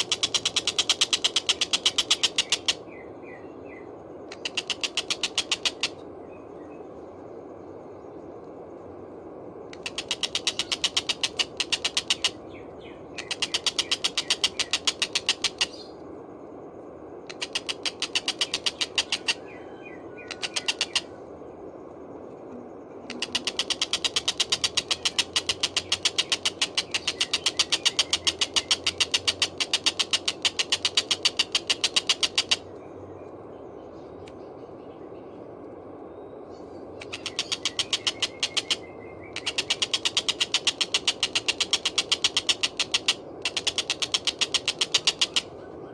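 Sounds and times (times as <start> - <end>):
kingfisher calling harsh notes: 9.8 - 12.4, 13.2 - 15.7, 17.3 - 19.4, 23.1 - 32.6, 37.0 - 45.5.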